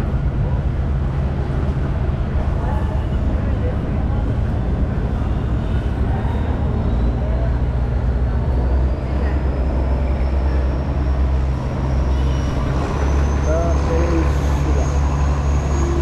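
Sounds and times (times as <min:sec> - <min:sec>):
boat diesel engine drone: 0:00.0 - 0:16.0.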